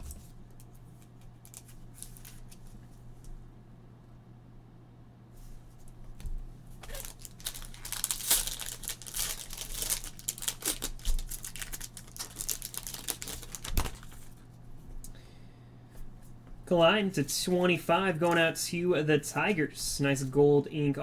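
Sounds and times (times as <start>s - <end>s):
packaging crinkling and rustling: 0.0s - 2.9s, 6.2s - 14.6s, 17.6s - 18.5s.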